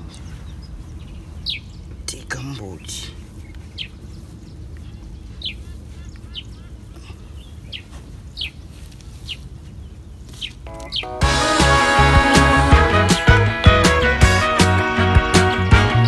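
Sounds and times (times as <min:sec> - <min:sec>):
bird chirping: 0:00.0 - 0:11.2
loud music: 0:10.7 - 0:16.0.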